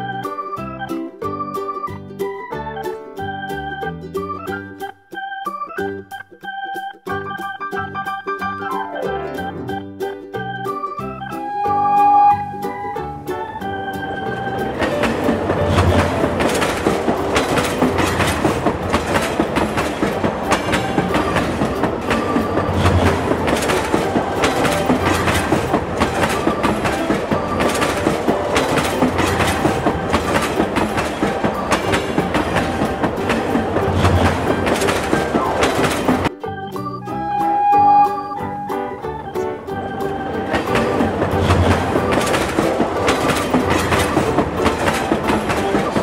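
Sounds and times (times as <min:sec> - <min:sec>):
train wheels clattering on rails: 0:12.3 - 0:36.3, 0:38.6 - 0:46.0.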